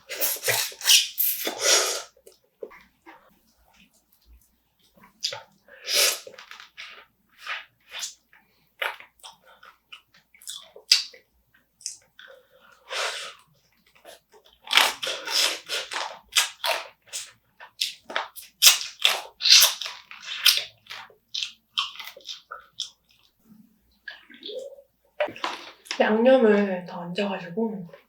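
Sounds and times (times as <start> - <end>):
crab being chewed and crunched: 6.2 - 23.4.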